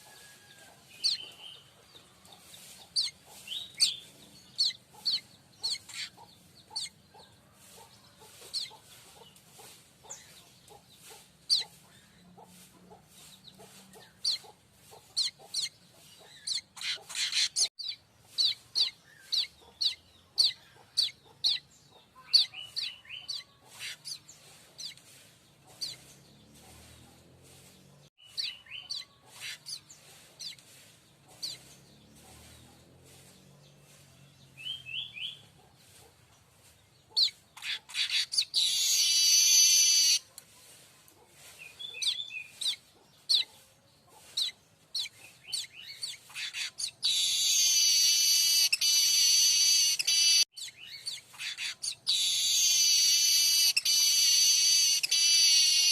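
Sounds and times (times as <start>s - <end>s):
bird chirps and trills: 0.0s - 12.2s, 13.2s - 27.0s, 27.9s - 36.0s, 37.1s - 40.2s, 41.5s - 55.9s
bird wheezy buzz: 37.6s - 40.2s, 46.4s - 50.5s, 51.4s - 55.9s.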